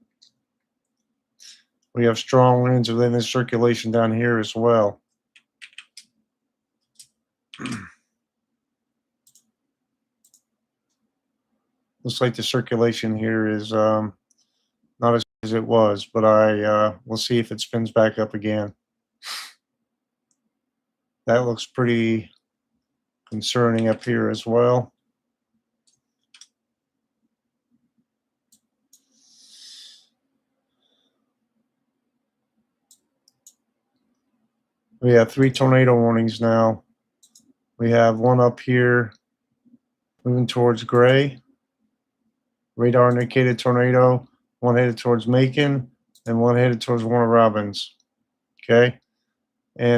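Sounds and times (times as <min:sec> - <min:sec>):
computer mouse clicks: 0:05.1 - 0:06.2, 0:06.8 - 0:07.8, 0:09.2 - 0:09.6, 0:10.2 - 0:11.1, 0:23.3 - 0:24.1, 0:25.8 - 0:26.6, 0:28.5 - 0:29.2, 0:32.8 - 0:34.3, 0:37.2 - 0:37.6, 0:40.8 - 0:41.2, 0:43.1 - 0:43.5, 0:46.1 - 0:46.4.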